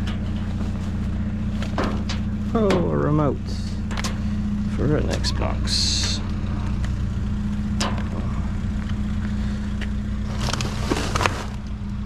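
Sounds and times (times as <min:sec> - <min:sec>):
short rustling clatter: 0:00.0 - 0:02.6, 0:10.2 - 0:11.6
vehicle engine idling: 0:00.0 - 0:12.0.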